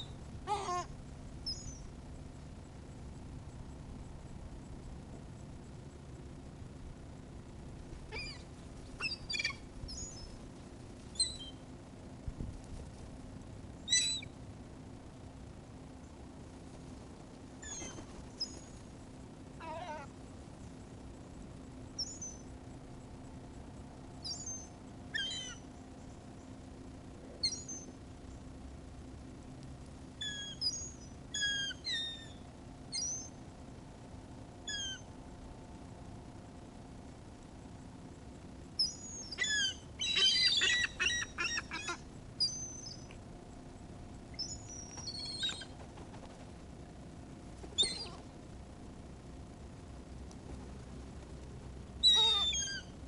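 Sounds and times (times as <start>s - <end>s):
seagulls calling: 0.0s - 0.9s, 38.8s - 43.0s, 47.8s - 48.2s, 52.0s - 53.0s.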